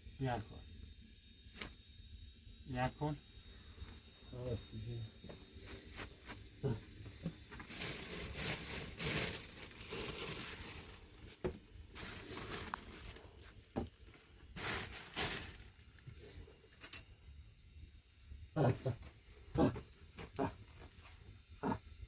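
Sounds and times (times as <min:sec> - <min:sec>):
rustling and crinkling handling noise: 0:07.0 - 0:16.4.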